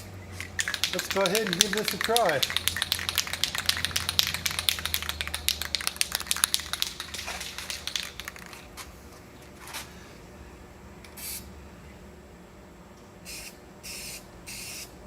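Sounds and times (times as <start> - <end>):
spray can ball rattling: 0.4 - 8.8.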